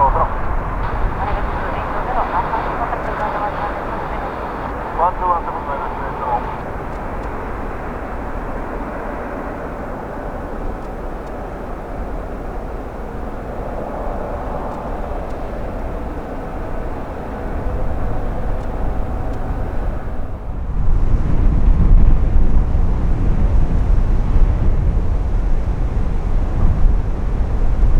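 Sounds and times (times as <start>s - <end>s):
distant jet engines rushing: 0.0s - 27.9s.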